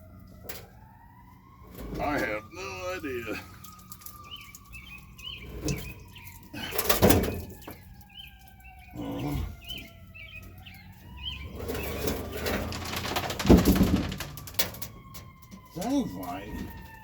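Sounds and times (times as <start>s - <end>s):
small birds chirping: 1.4s - 12.7s.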